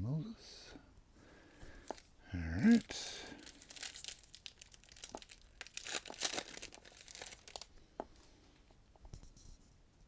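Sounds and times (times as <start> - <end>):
foil wrapper crinkling and tearing: 1.8 - 7.7.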